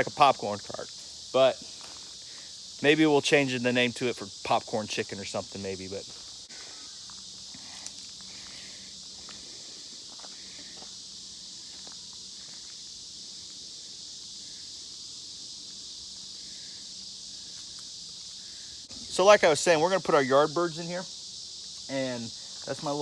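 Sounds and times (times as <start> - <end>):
insect chorus drone: 0.0 - 23.0.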